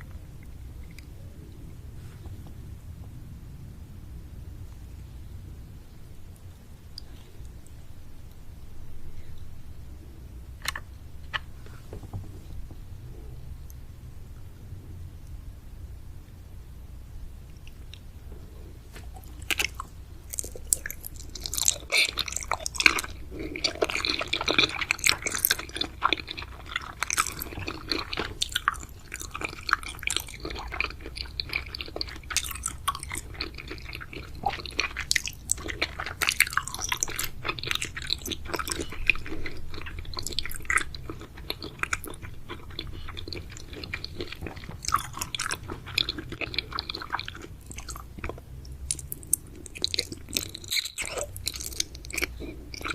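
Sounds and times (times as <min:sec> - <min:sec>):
chewing chewy sweets: 0:17.4 - 0:52.9.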